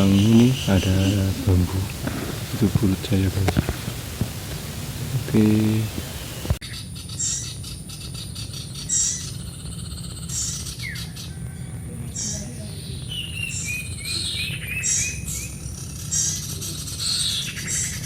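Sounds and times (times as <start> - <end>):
low background rumble: 0.0 - 6.6
small birds chirping: 0.0 - 18.0.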